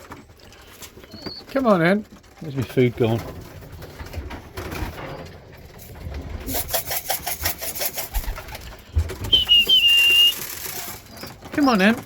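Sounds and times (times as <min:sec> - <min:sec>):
loud high whistle: 0:09.3 - 0:10.5.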